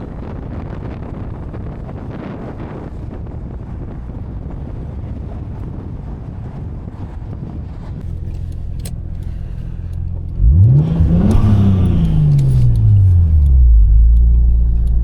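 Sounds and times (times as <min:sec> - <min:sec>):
another engine idling: 0:08.0 - 0:15.0
sports car engine revving: 0:08.0 - 0:15.0.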